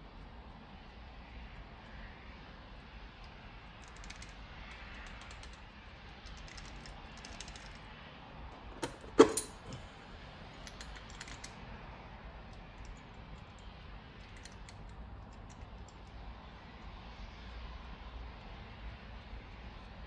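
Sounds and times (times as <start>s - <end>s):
small metallic clicks and taps: 3.2s - 7.8s, 10.6s - 11.6s, 12.5s - 16.2s.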